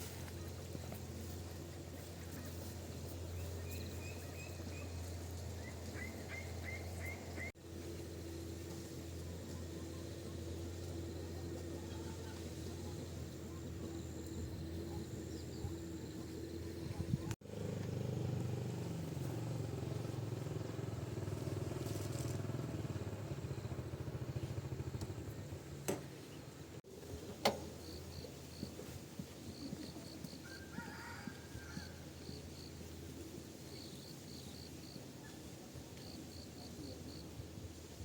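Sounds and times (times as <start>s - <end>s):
motor engine running: 0.0s - 30.4s.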